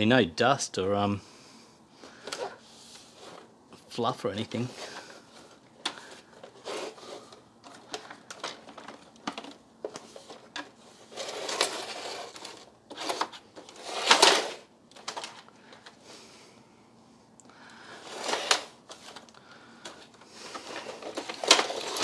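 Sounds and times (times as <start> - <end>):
plastic parts clicking and knocking: 7.6 - 15.9, 18.3 - 22.0.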